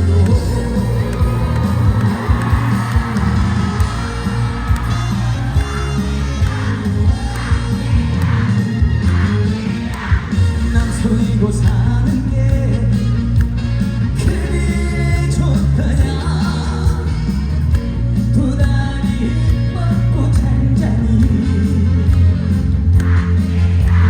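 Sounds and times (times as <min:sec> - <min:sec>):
man singing live: 0:00.0 - 0:03.4, 0:10.5 - 0:13.2, 0:14.1 - 0:17.4, 0:18.1 - 0:22.2
amplified band music with heavy bass: 0:00.0 - 0:24.0.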